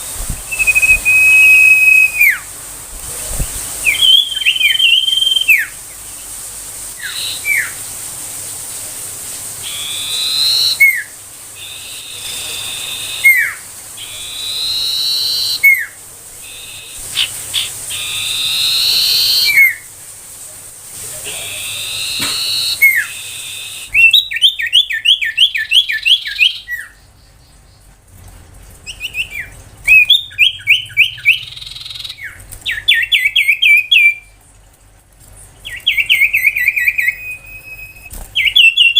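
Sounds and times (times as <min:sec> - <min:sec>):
bird singing whistles and trills: 0:00.3 - 0:02.5, 0:03.8 - 0:05.8, 0:07.0 - 0:07.8, 0:09.6 - 0:19.9, 0:21.4 - 0:27.1, 0:28.9 - 0:34.4, 0:35.6 - 0:38.9.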